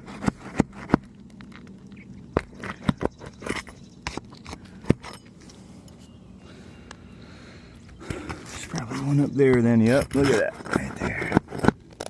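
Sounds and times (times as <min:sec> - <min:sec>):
tool scraping roof shingles: 0:00.0 - 0:01.1, 0:08.0 - 0:12.0.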